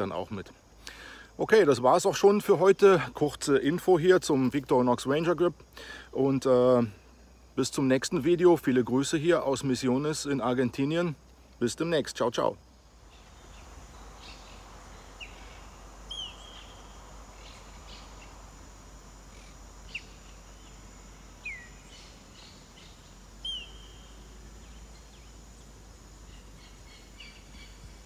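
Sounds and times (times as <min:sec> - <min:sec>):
open-air background noise: 0:00.0 - 0:28.0
wild birds calling: 0:12.6 - 0:28.0.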